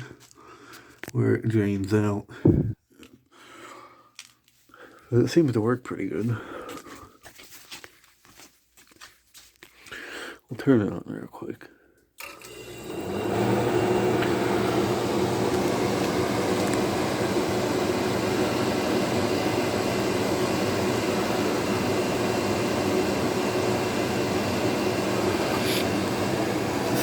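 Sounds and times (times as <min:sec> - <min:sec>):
dehumidifier hum: 0:12.6 - 0:27.0
dehumidifier fan whoosh: 0:12.9 - 0:27.0.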